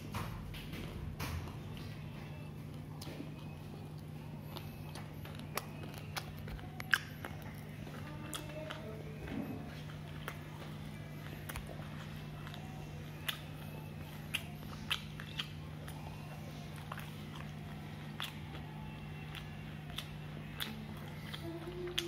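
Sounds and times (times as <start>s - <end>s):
person chewing crispy fried chicken: 1.2s - 22.0s.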